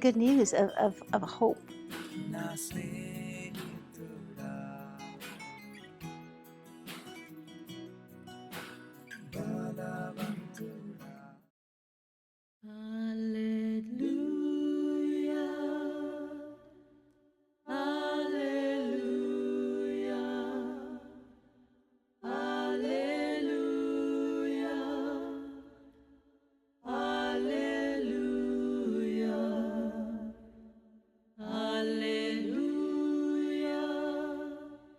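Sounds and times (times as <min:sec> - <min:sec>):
person singing unaccompanied: 0:02.2 - 0:05.3, 0:09.4 - 0:11.0.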